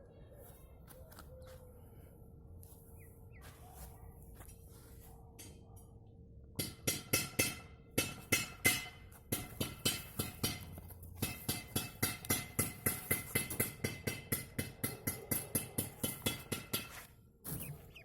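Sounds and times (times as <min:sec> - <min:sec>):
sharp knocks with metallic ring: 0:06.6 - 0:17.7.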